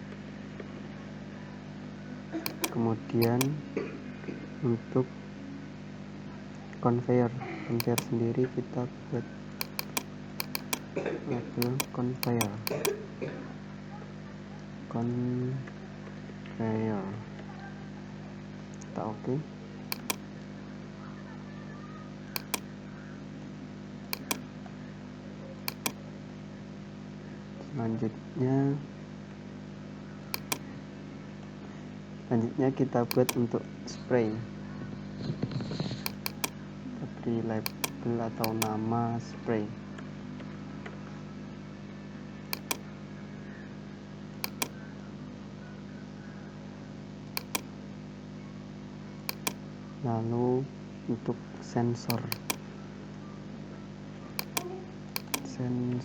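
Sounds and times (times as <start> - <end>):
mouse double-clicks: 2.5 - 3.6, 7.8 - 8.1, 9.6 - 10.8, 11.6 - 13.0, 19.9 - 20.2, 22.4 - 22.6, 24.2 - 24.4, 25.7 - 26.0, 30.4 - 30.6, 33.1 - 33.4, 36.1 - 36.6, 37.7 - 38.8, 42.6 - 42.8, 44.4 - 44.8, 47.4 - 47.7, 49.3 - 49.6, 52.1 - 52.6, 54.4 - 55.5.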